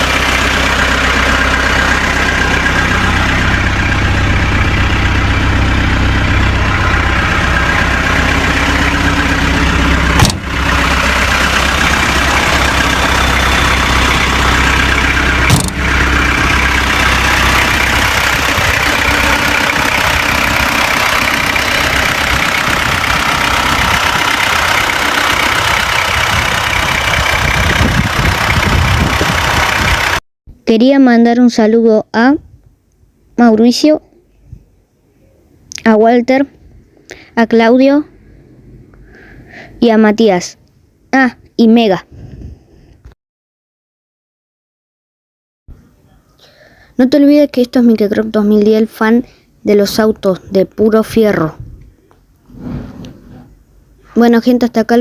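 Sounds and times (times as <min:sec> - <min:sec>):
car engine idling: 0:00.0 - 0:30.2, 0:52.0 - 0:54.2.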